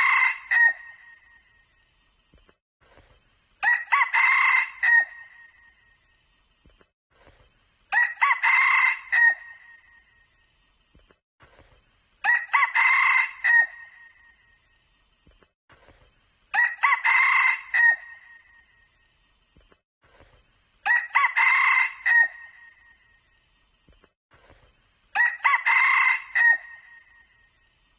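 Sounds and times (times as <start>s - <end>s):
rooster crowing: 0.0s - 0.9s, 3.6s - 5.3s, 7.9s - 9.6s, 12.2s - 13.9s, 16.6s - 18.4s, 20.9s - 22.8s, 25.2s - 27.2s.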